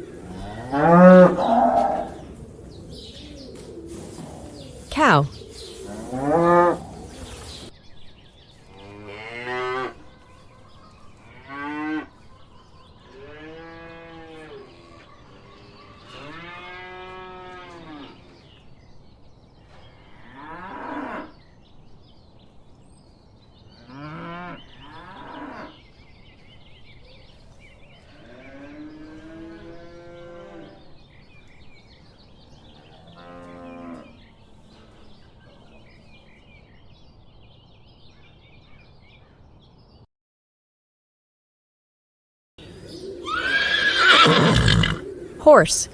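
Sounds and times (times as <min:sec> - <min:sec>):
cattle mooing: 0:00.1 - 0:02.4.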